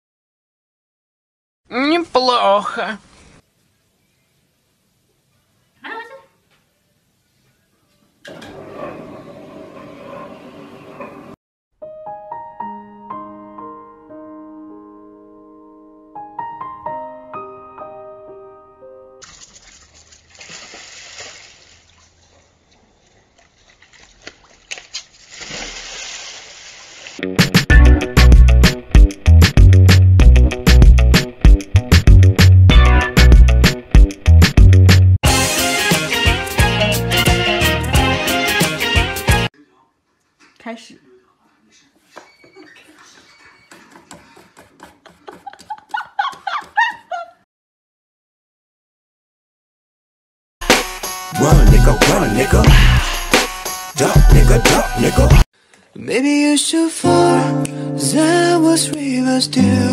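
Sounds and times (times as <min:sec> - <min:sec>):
water sloshing in hot tub: 0:19.2 - 0:27.2
person laughing: 0:42.2 - 0:47.4.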